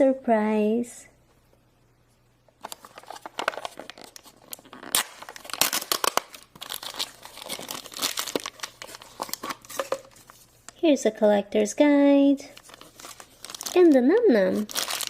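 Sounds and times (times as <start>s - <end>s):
packaging torn and crinkled: 2.6s - 10.3s, 12.5s - 15.0s.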